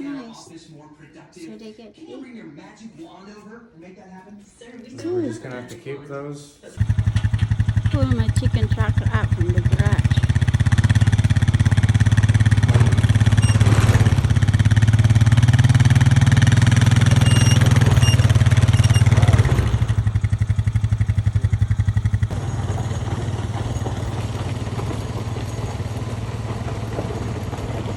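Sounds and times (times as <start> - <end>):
small engine running under load: 6.8 - 27.9.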